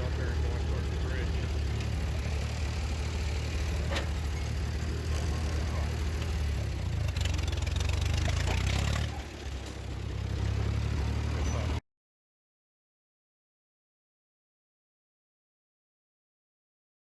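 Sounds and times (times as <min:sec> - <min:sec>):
tractor engine running: 0:00.0 - 0:11.8.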